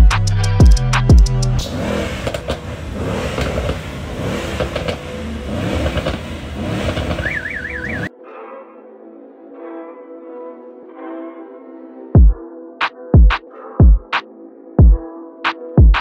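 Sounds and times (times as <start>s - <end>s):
music with heavy kick drum: 0.0s - 1.6s, 12.2s - 12.4s, 13.1s - 14.2s, 14.8s - 15.1s, 15.7s - 16.0s
car engines revving: 1.4s - 8.1s
fast-warbling alarm tone: 7.2s - 8.1s.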